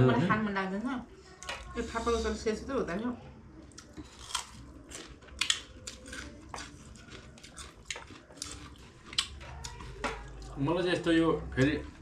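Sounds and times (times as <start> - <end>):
chewing and mouth smacks: 3.6 - 10.6.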